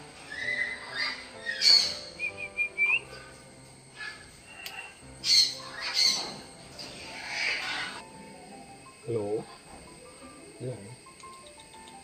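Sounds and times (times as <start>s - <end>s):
parrot harsh squawks: 0.2s - 2.2s, 4.0s - 6.4s, 7.0s - 8.0s
parrot whistled chirps: 0.2s - 3.2s.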